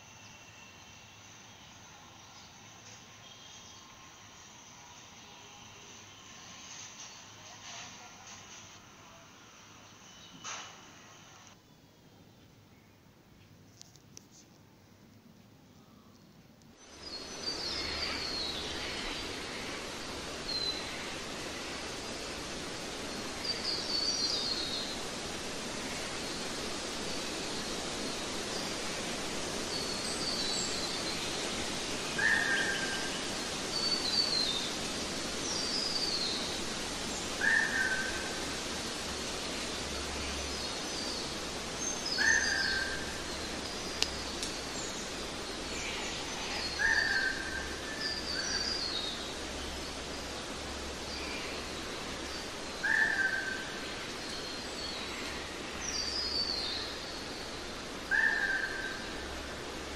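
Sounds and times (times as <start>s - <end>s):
steady hiss: 0.0s - 59.9s.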